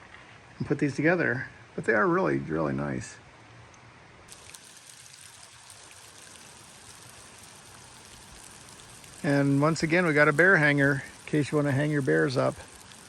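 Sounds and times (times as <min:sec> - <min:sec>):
light water drips: 0:03.7 - 0:13.0
trickle of running water: 0:04.3 - 0:13.0.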